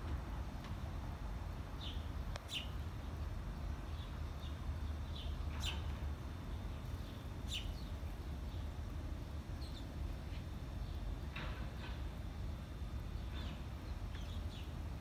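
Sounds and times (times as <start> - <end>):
small birds chirping: 1.8 - 11.3, 13.0 - 15.0.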